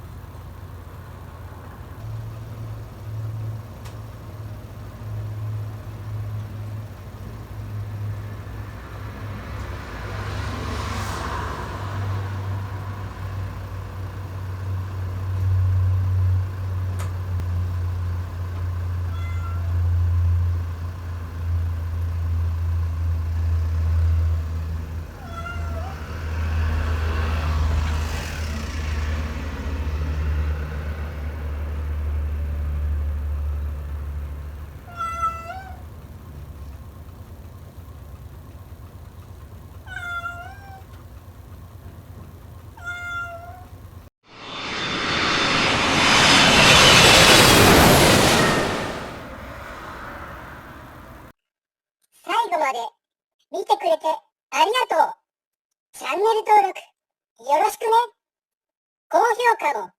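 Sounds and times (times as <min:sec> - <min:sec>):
cat meowing: 0:19.1 - 0:19.8, 0:25.2 - 0:26.0, 0:34.9 - 0:35.8, 0:39.9 - 0:40.8, 0:42.8 - 0:43.6.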